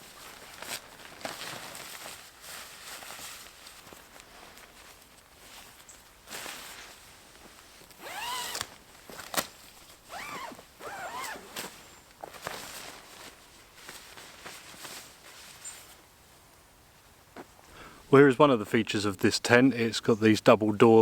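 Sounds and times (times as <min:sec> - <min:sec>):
tent zipper pulled: 0:07.9 - 0:11.8.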